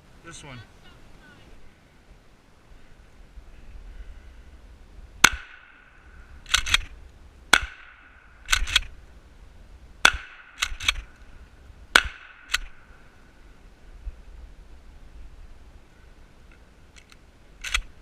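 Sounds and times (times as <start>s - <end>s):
loud gunshots: 5.2s - 5.8s, 7.5s - 8.8s, 10.0s - 11.0s, 11.9s - 12.7s
quieter gunshot cracks: 5.2s - 5.9s, 7.5s - 8.9s, 10.0s - 11.1s, 11.9s - 12.8s.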